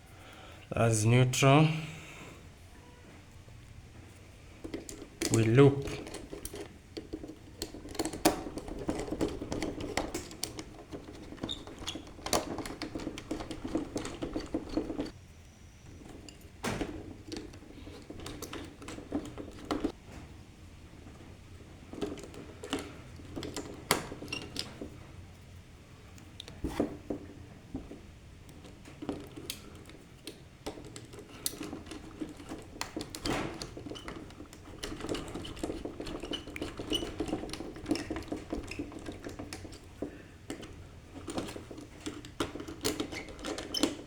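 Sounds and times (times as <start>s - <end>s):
wires and hand tools clicking: 4.6s - 15.2s, 28.5s - 44.0s.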